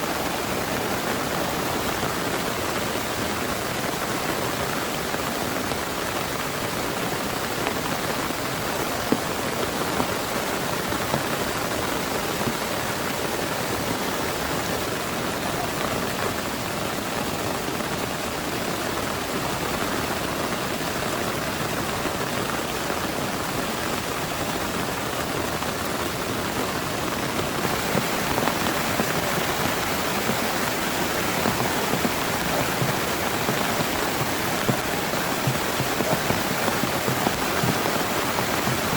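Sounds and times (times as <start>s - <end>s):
heavy rain falling: 0.0s - 38.9s
sharp raindrop hits: 27.5s - 38.9s.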